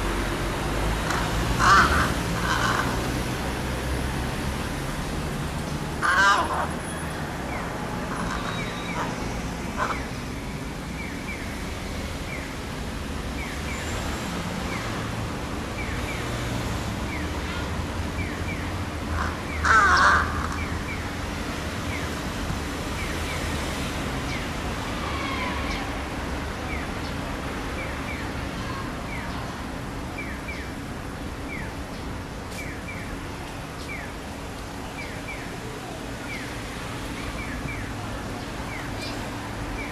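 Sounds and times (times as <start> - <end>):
crow calling: 1.1 - 3.1, 6.0 - 6.8, 8.1 - 10.2, 19.1 - 20.8.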